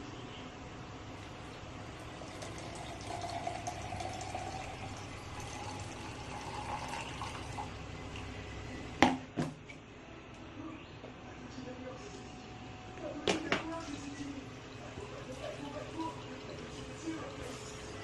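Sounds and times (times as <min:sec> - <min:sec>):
liquid pouring into vessel: 0:01.8 - 0:08.3.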